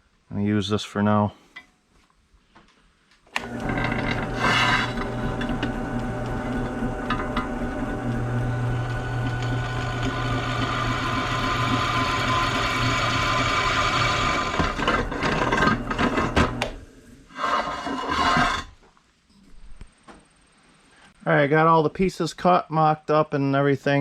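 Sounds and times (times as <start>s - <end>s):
electric drill boring steel: 3.4s - 16.8s.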